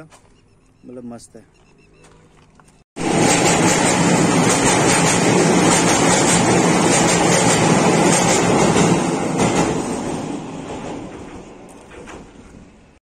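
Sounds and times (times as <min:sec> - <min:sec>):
train rumbling over bridge: 0:03.0 - 0:13.0.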